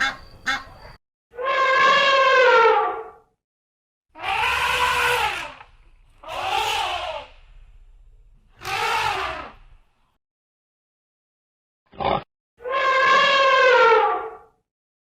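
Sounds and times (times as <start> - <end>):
elephant trumpeting: 4.2 - 5.6, 6.2 - 7.4, 8.6 - 9.7, 12.6 - 14.4.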